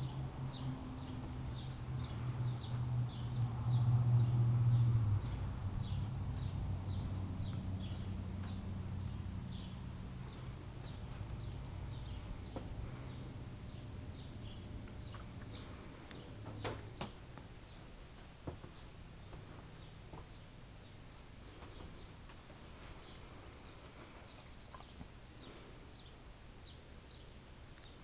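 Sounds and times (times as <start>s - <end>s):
low hum: 0.0s - 16.4s
small bird chirping: 0.0s - 16.7s, 23.0s - 28.0s.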